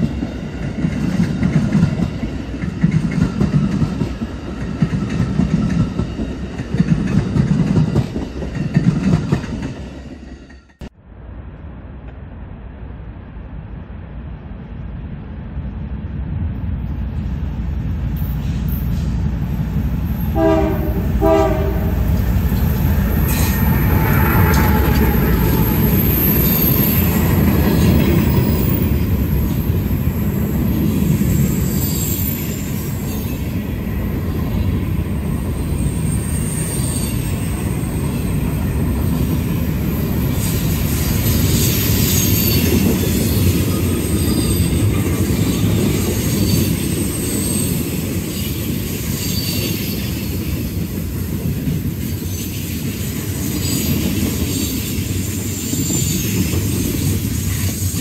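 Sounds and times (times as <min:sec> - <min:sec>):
wheels rumbling on rail: 0:00.0 - 0:58.0
short horn blasts: 0:20.4 - 0:22.1
high-pitched wheel squeal: 0:23.1 - 0:27.2, 0:31.2 - 0:33.3.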